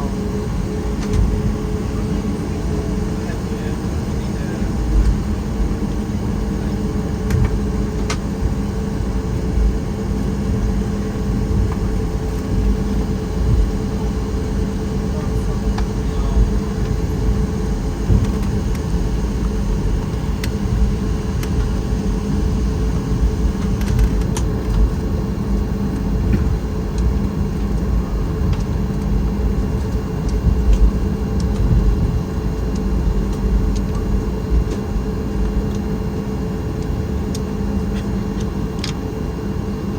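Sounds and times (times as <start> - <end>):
airplane cabin rumble and hum: 0.0 - 39.9.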